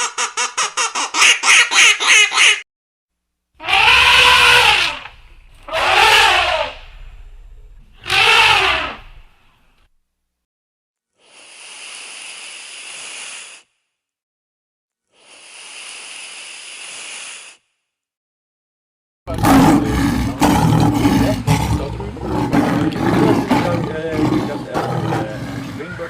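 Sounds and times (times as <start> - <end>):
rough continuous animal call: 3.6 - 9.8, 19.3 - 26.0.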